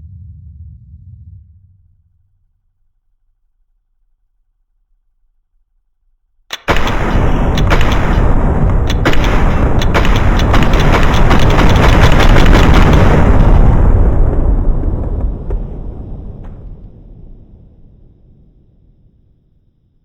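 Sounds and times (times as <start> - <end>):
loud distorted noise with crackling: 6.5 - 17.0.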